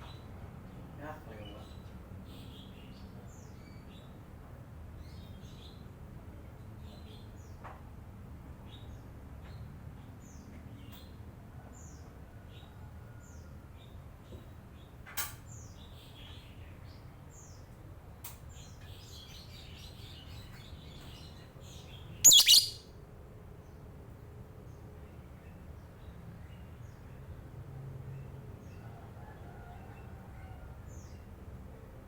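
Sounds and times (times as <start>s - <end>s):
lovebirds chirping: 22.3s - 22.8s.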